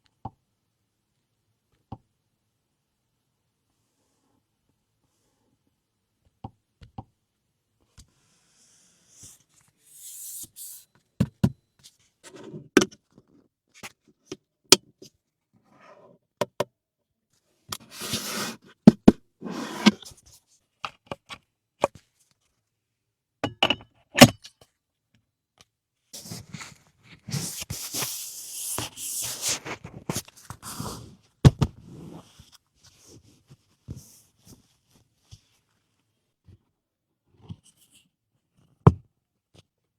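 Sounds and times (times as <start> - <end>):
rustling and scraping: 19.4 - 20.2.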